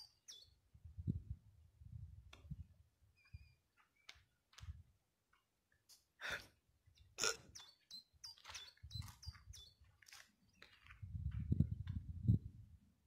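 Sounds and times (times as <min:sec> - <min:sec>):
small birds chirping: 0:00.0 - 0:00.6, 0:03.1 - 0:04.4, 0:06.9 - 0:11.6
low wind rumble: 0:00.7 - 0:02.9, 0:11.0 - 0:12.9.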